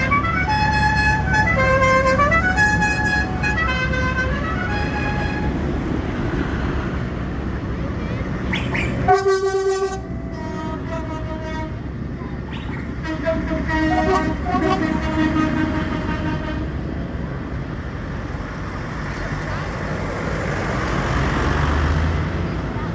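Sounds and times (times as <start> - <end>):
horn playing quick tune: 0.0 - 5.7, 12.5 - 16.2
loud horn blast: 0.0 - 6.1, 8.6 - 16.9
tractor engines running: 0.0 - 22.9.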